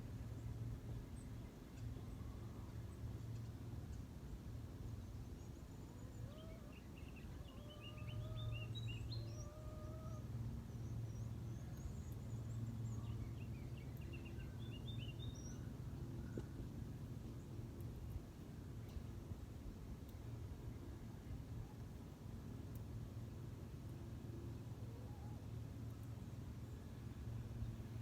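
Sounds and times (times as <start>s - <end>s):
steady low hum: 0.0s - 28.0s
small birds chirping: 0.3s - 19.2s
distant low bird call: 6.0s - 11.0s.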